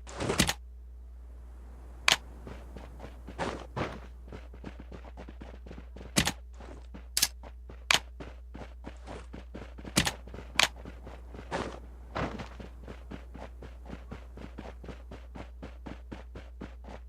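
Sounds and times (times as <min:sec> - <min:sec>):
steady low hum: 0:00.0 - 0:17.0
sharp clicks and knocks: 0:06.0 - 0:06.4, 0:09.8 - 0:10.8.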